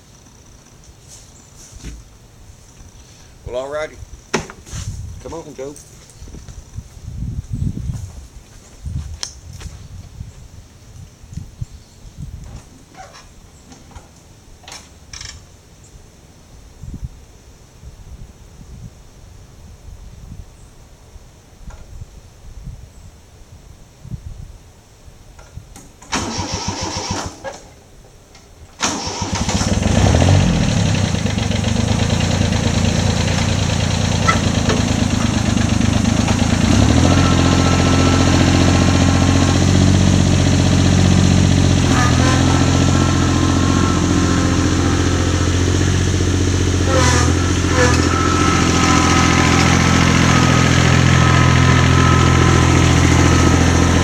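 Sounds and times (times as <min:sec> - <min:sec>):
engine cranking and running: 0:26.0 - 0:27.8, 0:28.8 - 0:54.0.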